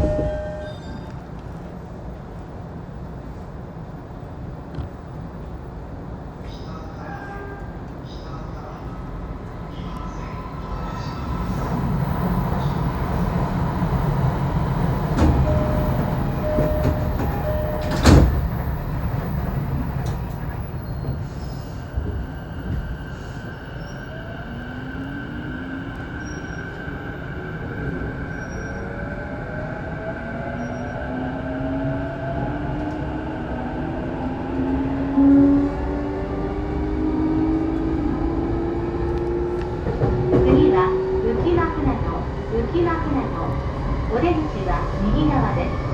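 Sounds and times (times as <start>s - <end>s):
train door chime: 0.0s - 1.3s, 14.7s - 21.2s
train doors shutting thump: 14.6s - 21.2s.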